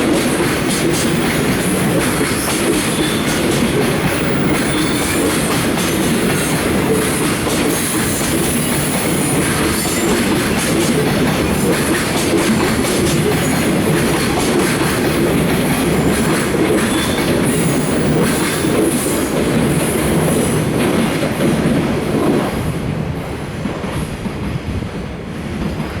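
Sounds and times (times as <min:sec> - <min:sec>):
train wheels rumbling and clacking: 0:00.0 - 0:26.0.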